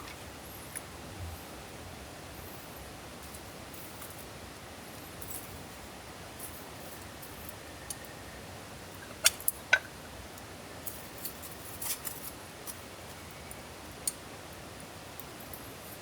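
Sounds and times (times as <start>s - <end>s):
soft steady fire hiss: 0.0s - 16.0s
campfire crackling and popping: 9.0s - 10.0s.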